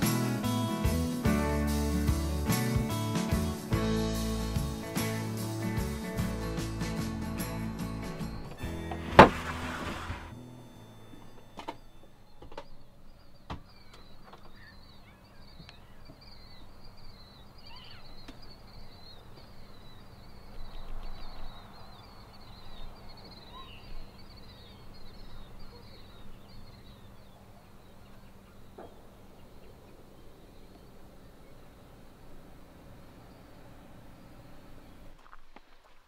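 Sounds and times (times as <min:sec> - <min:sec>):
birds chirping: 0:00.0 - 0:35.8
faint low hum: 0:07.6 - 0:36.0.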